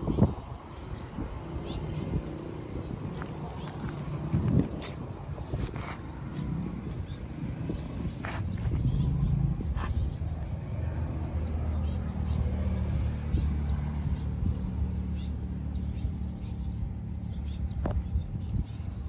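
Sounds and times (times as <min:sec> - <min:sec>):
low background rumble: 0:00.0 - 0:12.0
small birds chirping: 0:00.0 - 0:19.0.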